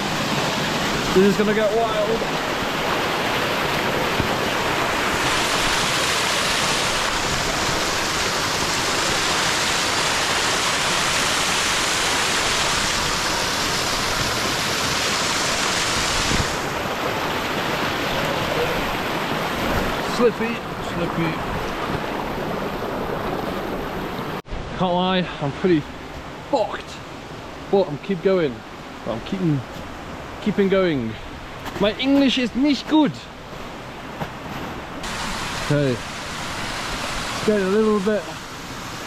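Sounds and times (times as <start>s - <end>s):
river rushing over rocks: 0.0s - 24.4s, 34.8s - 39.0s.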